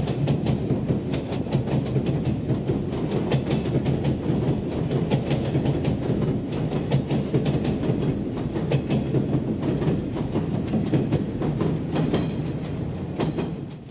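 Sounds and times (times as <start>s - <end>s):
electric train passing: 0.0s - 13.9s
wheels clacking over rail joints: 0.0s - 13.9s.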